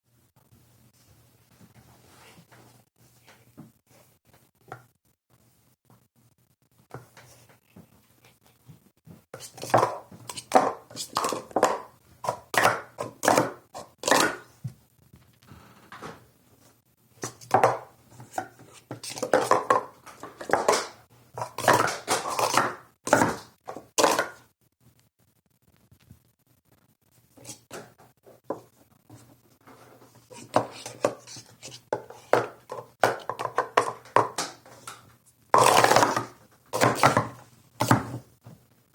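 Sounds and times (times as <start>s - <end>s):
plastic cups clattering: 9.4s - 14.6s, 17.2s - 24.4s, 29.7s - 38.2s.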